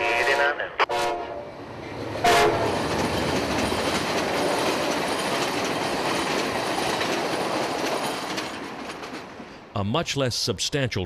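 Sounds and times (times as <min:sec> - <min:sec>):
train wheels rattling on rails: 0:01.0 - 0:09.7.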